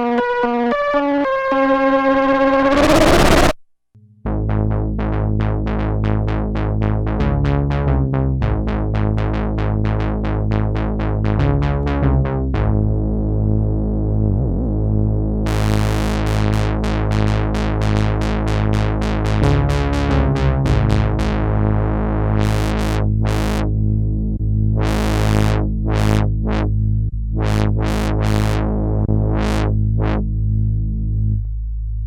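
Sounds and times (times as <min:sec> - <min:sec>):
synth bass and chord: 0:02.5 - 0:03.6, 0:10.9 - 0:30.3
bright noisy synth patch: 0:02.6 - 0:03.6
plucked synth pattern: 0:02.6 - 0:03.6.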